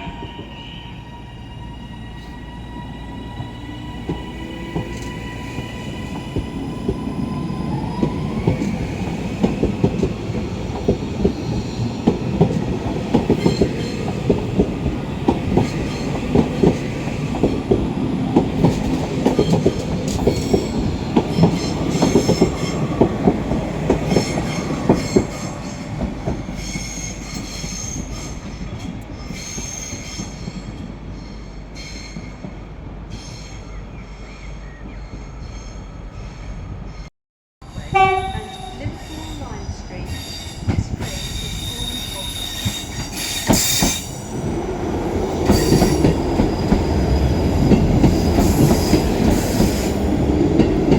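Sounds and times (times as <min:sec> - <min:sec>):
high-pitched wheel squeal: 0:37.8 - 0:43.8
train wheels clicking over rail joints: 0:38.9 - 0:44.4, 0:45.0 - 0:50.9.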